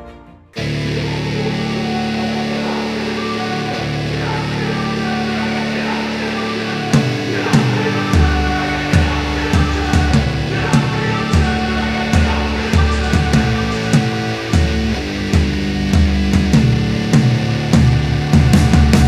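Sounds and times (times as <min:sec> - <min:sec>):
rock music with electric guitar: 0:00.6 - 0:19.0
steady drum beat: 0:07.0 - 0:19.0.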